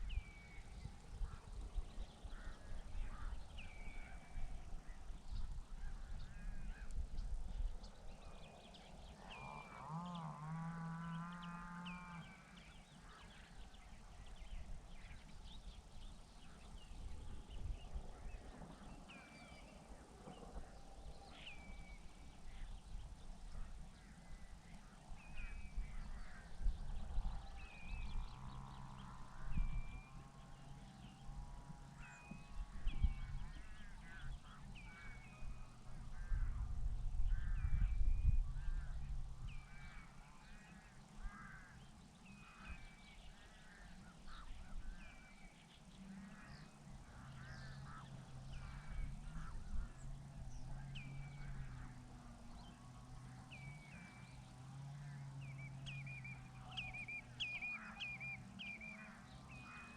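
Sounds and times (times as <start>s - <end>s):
waterbirds calling: 37.2s - 59.9s.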